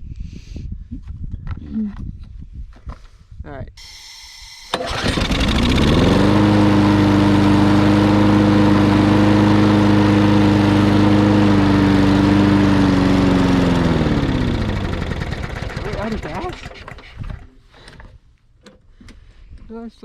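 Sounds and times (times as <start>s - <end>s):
lawn mower engine running: 3.8s - 17.6s.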